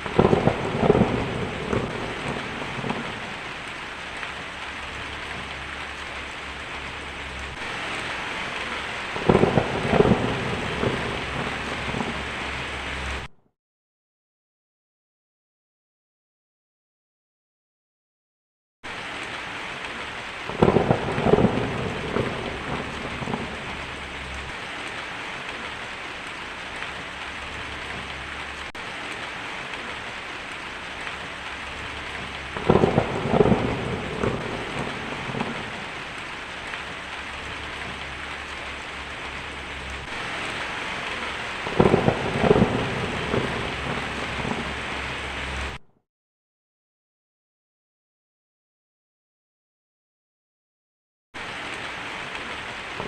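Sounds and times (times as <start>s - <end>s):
steady rain: 0.0s - 13.3s, 18.8s - 45.8s, 51.4s - 53.0s
thunder rumbling: 0.0s - 13.3s, 19.2s - 45.8s.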